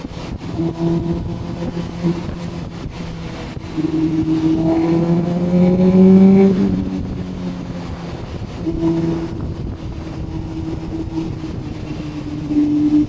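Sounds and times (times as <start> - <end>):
motorcycle engine running: 0.0 - 13.0
rushing noise: 0.0 - 13.0.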